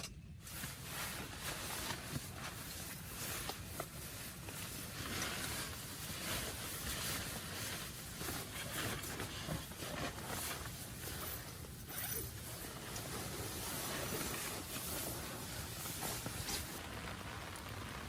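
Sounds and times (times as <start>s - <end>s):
heavy rain: 12.9s - 18.0s.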